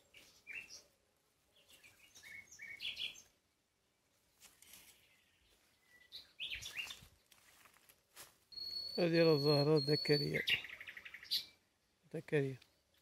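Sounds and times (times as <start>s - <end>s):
small birds chirping faintly: 0.0s - 13.0s.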